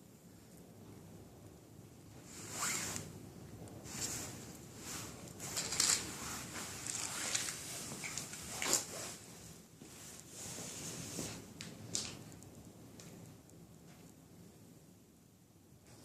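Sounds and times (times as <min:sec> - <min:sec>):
matches scraping and rustling: 0:03.8 - 0:13.2.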